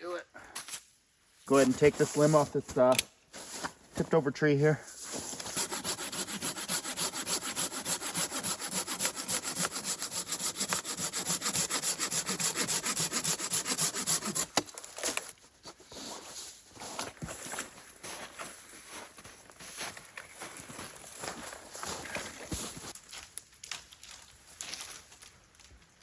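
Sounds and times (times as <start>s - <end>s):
hand saw cutting wood: 5.1s - 15.3s.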